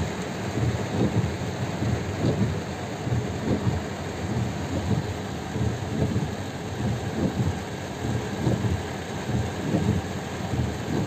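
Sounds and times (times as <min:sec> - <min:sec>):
heavy rain on car roof: 0:00.0 - 0:11.0.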